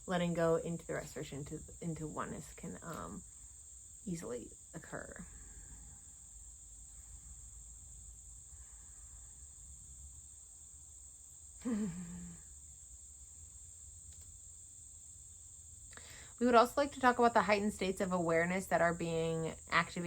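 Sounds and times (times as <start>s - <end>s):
insects chirring: 0.0s - 20.0s
person vocal sound falling in pitch: 11.6s - 12.4s.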